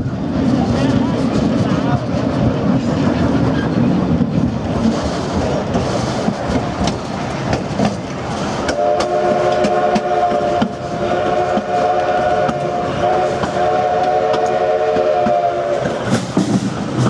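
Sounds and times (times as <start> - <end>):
train wheels clacking on rails: 0.0 - 17.0
steam whistle chord: 8.7 - 15.9.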